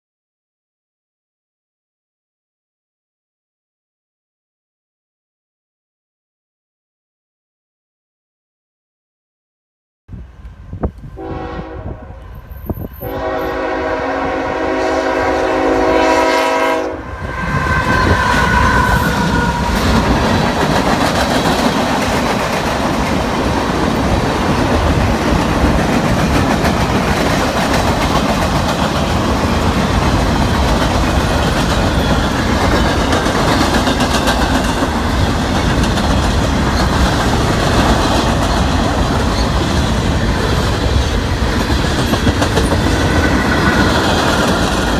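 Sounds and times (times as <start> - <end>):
freight train wheels rumbling on rail: 10.2 - 44.9
diesel locomotive horn blasts: 11.1 - 20.1.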